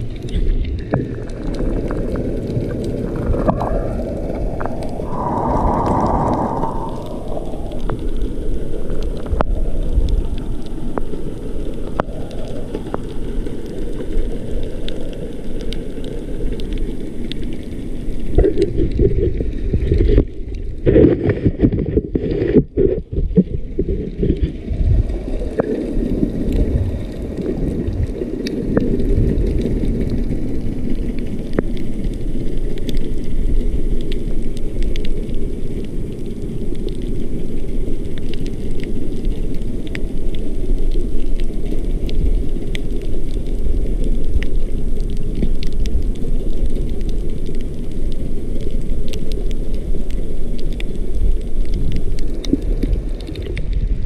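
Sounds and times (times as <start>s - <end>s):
faint clicks: 0.0s - 20.9s, 25.4s - 54.0s
underwater rush of water: 0.0s - 54.0s.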